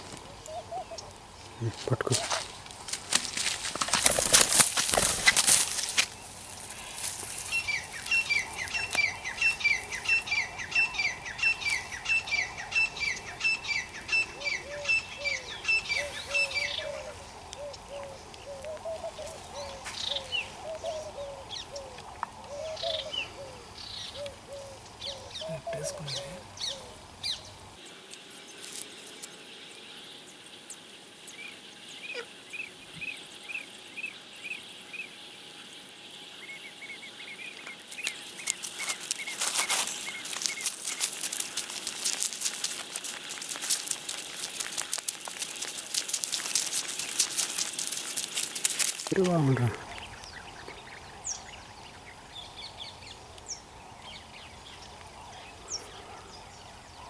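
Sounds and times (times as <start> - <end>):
birds fast high chirps: 6.1 - 21.9, 36.2 - 56.8.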